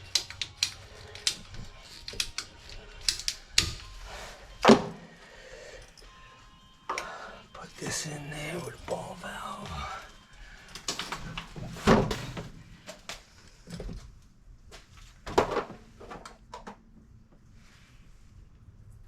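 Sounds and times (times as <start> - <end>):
plumbing fittings and tools clicking: 0.0 - 5.0, 10.6 - 14.0.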